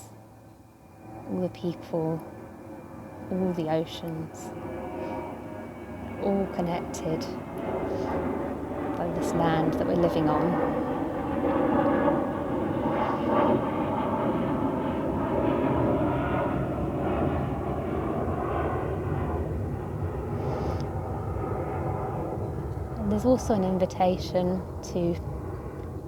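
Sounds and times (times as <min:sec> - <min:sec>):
faint tonal hum: 0:00.0 - 0:26.0.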